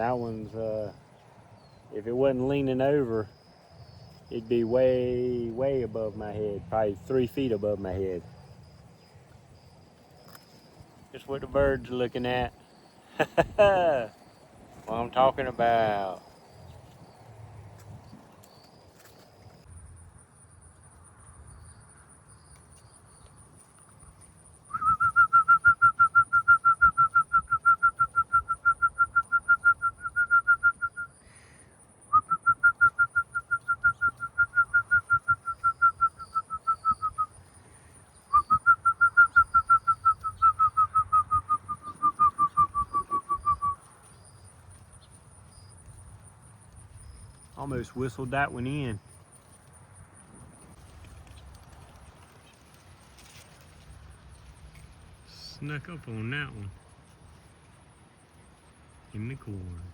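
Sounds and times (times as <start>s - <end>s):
person whistling a bird call: 24.7s - 31.2s, 32.1s - 37.3s, 38.3s - 43.8s.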